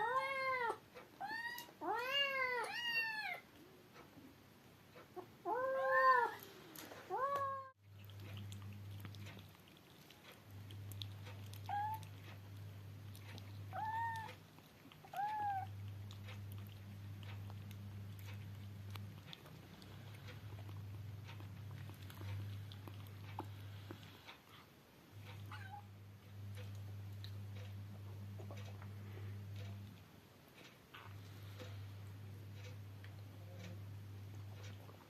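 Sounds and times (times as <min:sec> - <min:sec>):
steady low hum: 0:03.4 - 0:35.0
kittens meowing: 0:15.0 - 0:15.8.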